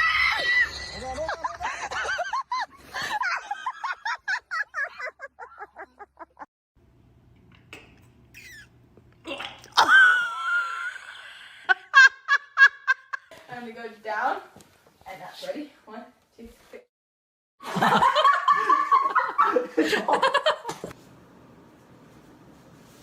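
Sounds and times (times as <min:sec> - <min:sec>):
person laughing: 0:00.7 - 0:06.5
loud high-pitched cry: 0:08.4 - 0:08.7.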